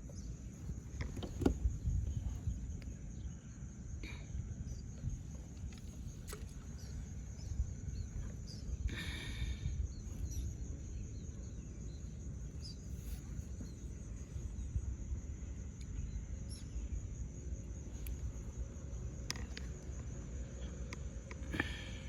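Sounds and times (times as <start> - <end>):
insects chirring: 0.0 - 22.0
small clicks: 17.9 - 18.5, 19.2 - 20.1.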